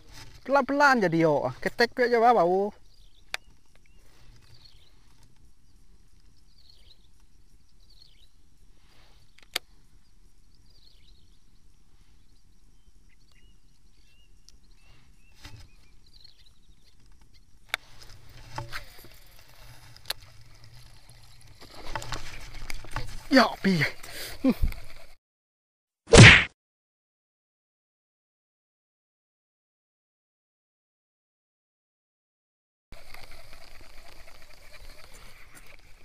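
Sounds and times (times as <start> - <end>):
rustling and knocks of gear: 17.8 - 23.3.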